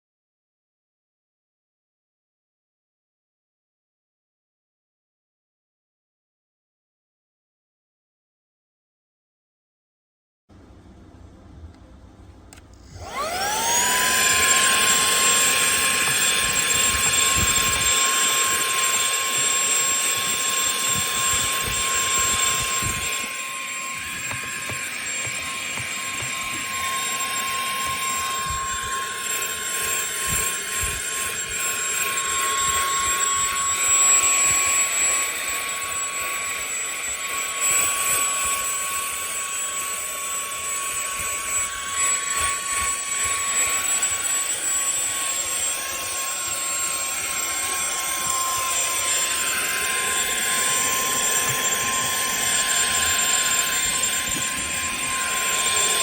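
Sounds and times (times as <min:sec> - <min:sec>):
handheld vacuum cleaner whine: 0:12.5 - 0:56.0.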